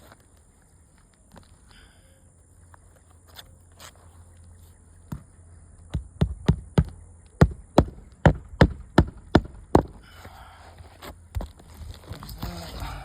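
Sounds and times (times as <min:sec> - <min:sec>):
hammer striking roofing nails: 0:05.9 - 0:10.1.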